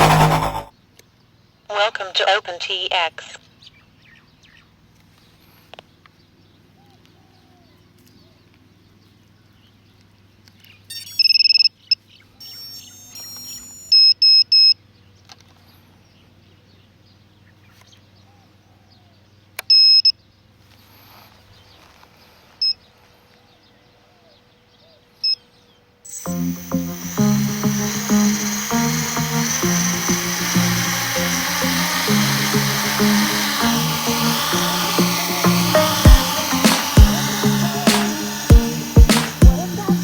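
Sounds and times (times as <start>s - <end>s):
radio transmitter beeping: 0.0s - 0.7s, 1.7s - 3.4s, 12.4s - 14.1s, 26.1s - 40.0s.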